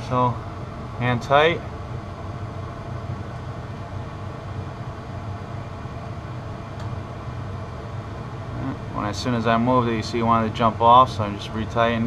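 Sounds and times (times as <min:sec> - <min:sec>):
furnace blower humming: 0:00.0 - 0:12.0.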